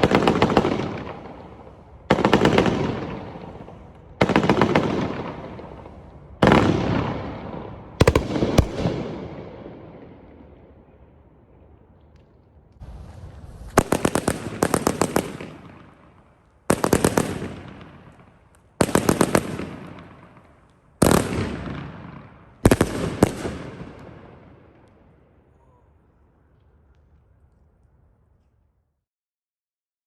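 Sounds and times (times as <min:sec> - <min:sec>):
firework cake bangs: 0:12.8 - 0:18.1.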